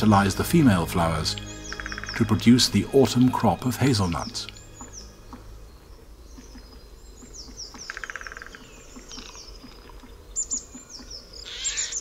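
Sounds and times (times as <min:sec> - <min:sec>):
wild birds calling: 0:00.0 - 0:12.0.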